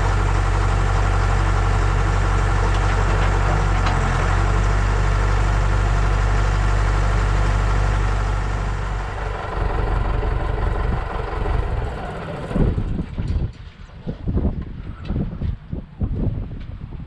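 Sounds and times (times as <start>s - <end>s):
backhoe engine idling: 0.0s - 13.2s.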